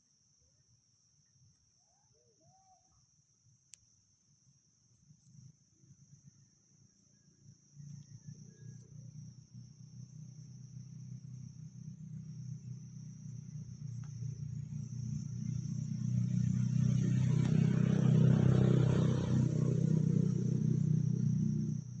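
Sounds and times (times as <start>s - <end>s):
low motor rumble: 8.2s - 22.0s.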